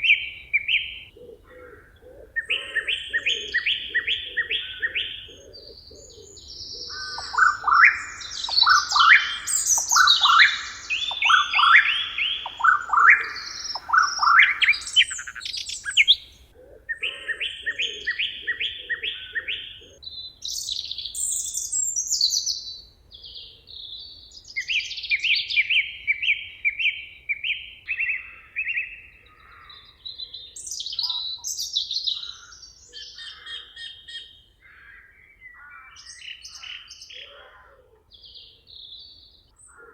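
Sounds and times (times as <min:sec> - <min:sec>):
birds chirping: 0:00.0 - 0:22.3
bird trills: 0:02.4 - 0:20.0
quick falling bird notes: 0:07.0 - 0:15.1.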